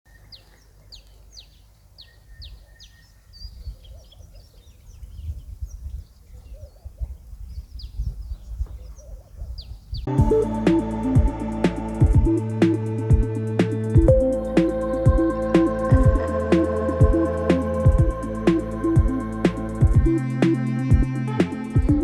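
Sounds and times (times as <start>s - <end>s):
birds whistling: 0.1s - 10.1s
low rumble: 10.1s - 22.0s
music: 10.1s - 22.0s.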